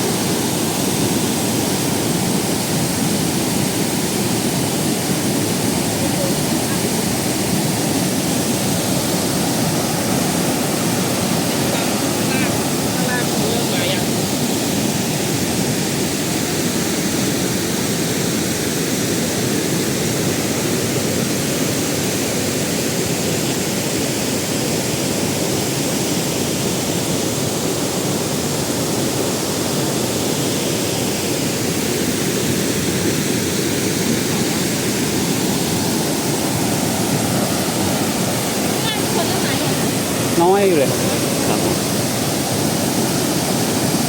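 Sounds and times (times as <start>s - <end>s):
waterfall rushing over rocks: 0.0s - 44.0s.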